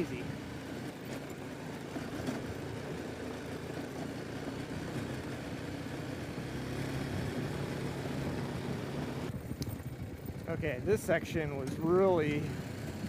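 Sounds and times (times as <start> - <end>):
motorcycle engine running: 0.0 - 13.0
road noise: 0.0 - 13.0
wind noise: 9.3 - 11.2.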